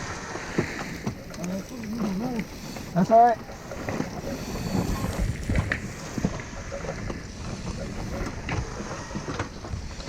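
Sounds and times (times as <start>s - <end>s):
rumbling noise on microphone: 3.5s - 10.0s.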